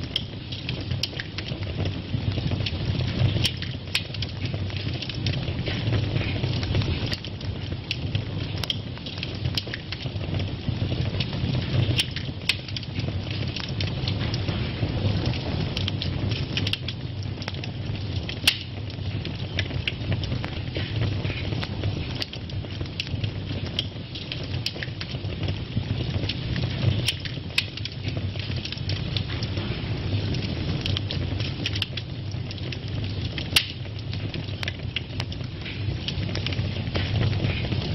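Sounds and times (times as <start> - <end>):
fire crackling and popping: 0.0 - 37.9
fire flames rumbling: 0.0 - 37.9.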